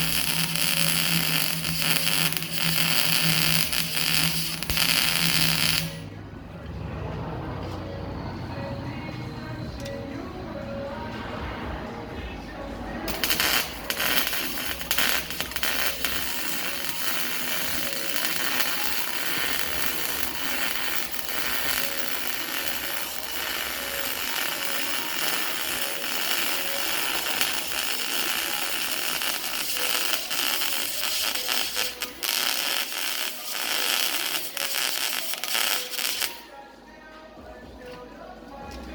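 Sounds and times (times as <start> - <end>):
arc welding crackling sizzle: 0.0 - 6.1, 13.0 - 36.6.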